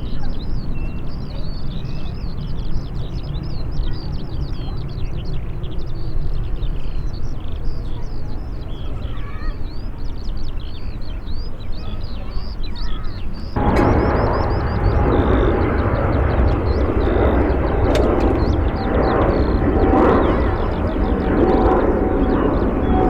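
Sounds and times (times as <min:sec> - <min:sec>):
small birds chirping: 0:00.0 - 0:23.0
steady low rumble: 0:13.6 - 0:23.0.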